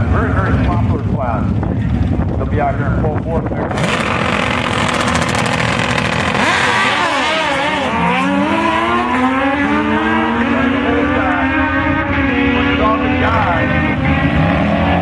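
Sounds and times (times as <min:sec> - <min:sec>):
motorcycle engines running steadily: 0:00.0 - 0:15.0
motorcycle engine revving up: 0:03.7 - 0:15.0.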